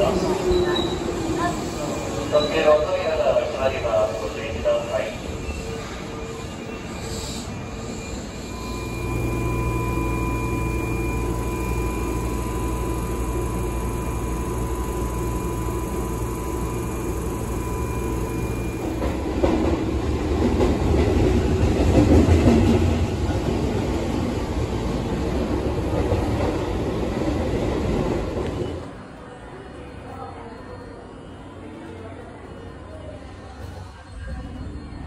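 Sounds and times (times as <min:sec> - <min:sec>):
train low hum: 0:00.0 - 0:35.0
train running noise: 0:00.0 - 0:35.0
faint whining tones: 0:06.4 - 0:19.1.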